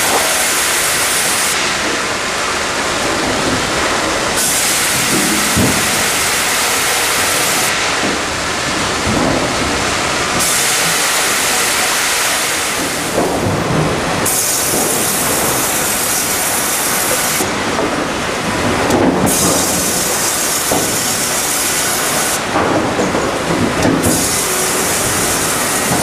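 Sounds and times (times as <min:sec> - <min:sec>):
sawmill machinery running: 0:00.0 - 0:26.0
high hiss: 0:04.4 - 0:07.8.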